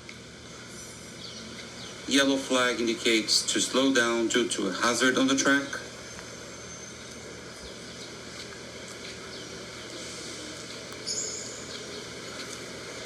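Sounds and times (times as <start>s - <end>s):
outdoor background noise: 0.0s - 13.0s
bird chirps: 11.0s - 12.1s.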